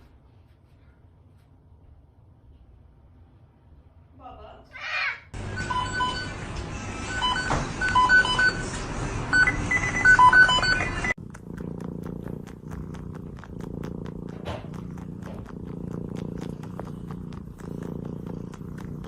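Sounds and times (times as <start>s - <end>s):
short electronic beeps: 9.3s - 11.1s
cat purring: 10.2s - 19.0s.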